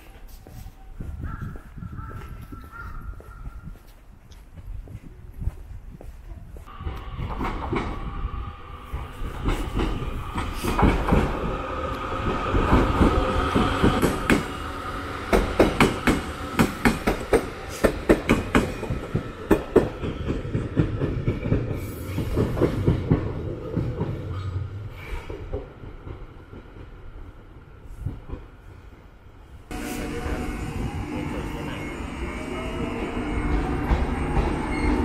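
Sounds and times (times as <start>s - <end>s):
train wheels clacking over rail joints: 9.3s - 24.6s.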